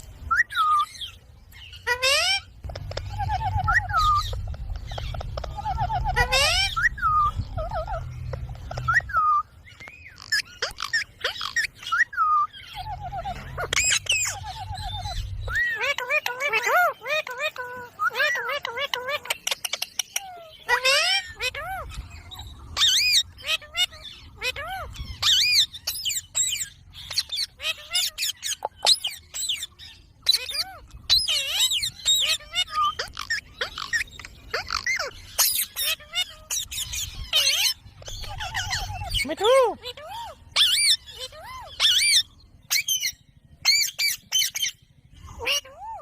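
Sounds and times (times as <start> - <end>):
parakeet chirps and squawks: 0.0 - 46.0
low rumble: 2.4 - 9.7, 12.6 - 15.8, 29.9 - 45.5.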